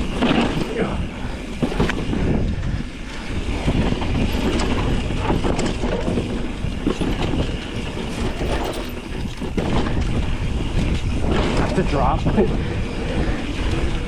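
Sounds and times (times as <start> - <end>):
tyres rumbling on dirt trail: 0.0 - 14.0
wind on microphone: 0.0 - 14.0
bike frame rattling and knocking: 3.6 - 10.2.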